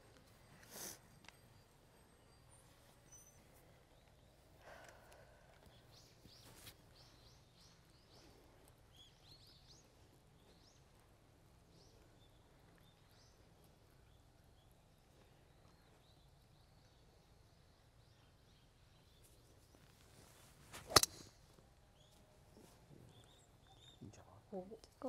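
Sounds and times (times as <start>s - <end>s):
faint birdsong chirps: 0.0s - 25.0s.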